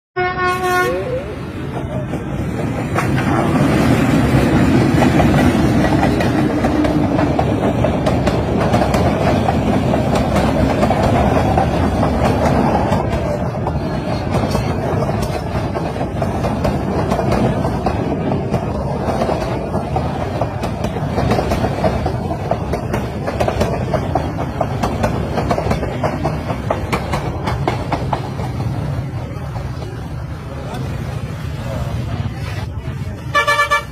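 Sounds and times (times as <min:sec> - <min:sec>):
train rumbling past: 0:00.2 - 0:33.9
wheels clicking over rail joints: 0:01.6 - 0:31.2.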